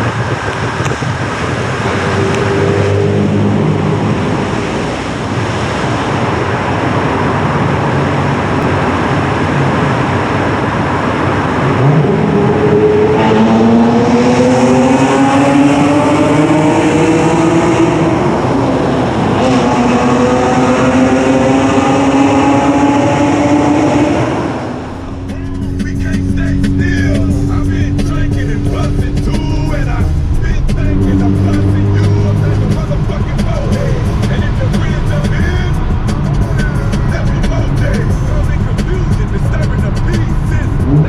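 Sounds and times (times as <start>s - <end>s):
car engine with rough exhaust: 0.0s - 41.0s.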